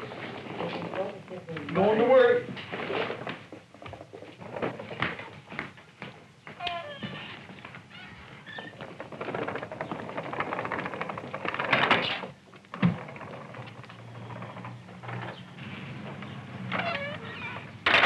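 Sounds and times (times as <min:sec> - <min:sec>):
skateboard wheels rattling on pavement: 0:07.8 - 0:18.0.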